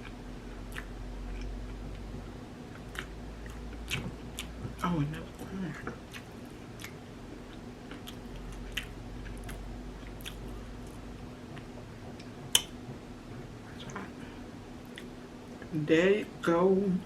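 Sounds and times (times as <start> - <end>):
person chewing food: 0.0 - 15.1
faint steady hum: 0.0 - 17.0.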